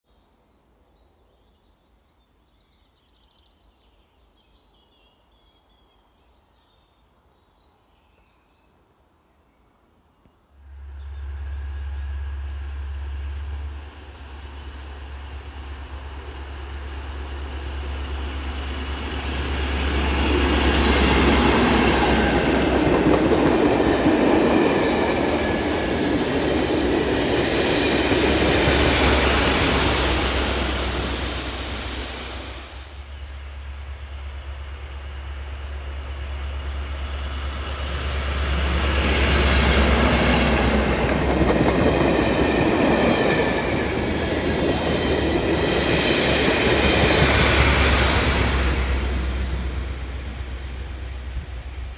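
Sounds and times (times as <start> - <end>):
faint birdsong: 0.0 - 51.9
train wheels rumbling on rail: 10.8 - 51.9.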